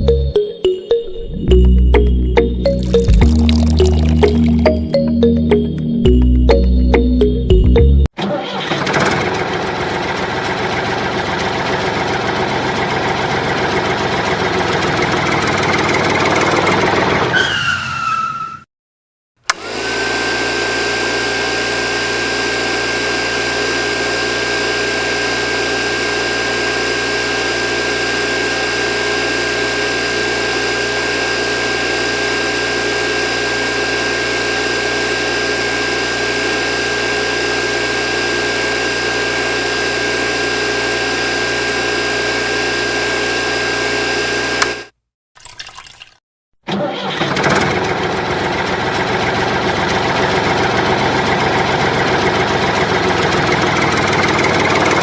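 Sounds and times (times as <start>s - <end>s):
engine-like drone with high whine: 19.5s - 44.9s.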